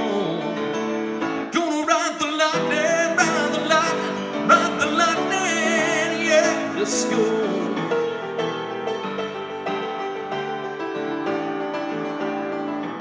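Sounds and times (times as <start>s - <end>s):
man singing with vibrato: 0.0s - 8.4s
instrumental backing: 0.0s - 13.0s.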